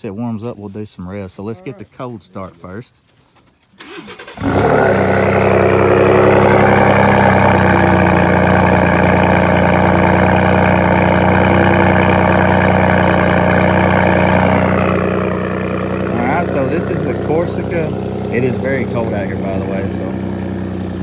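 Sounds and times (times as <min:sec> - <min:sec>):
truck engine cranking: 0:03.8 - 0:21.0
truck engine idling loudly: 0:03.8 - 0:21.0.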